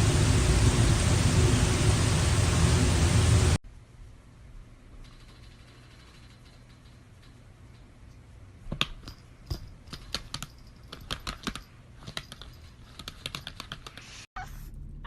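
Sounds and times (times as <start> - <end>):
sharp clicking and tapping: 8.7 - 14.0.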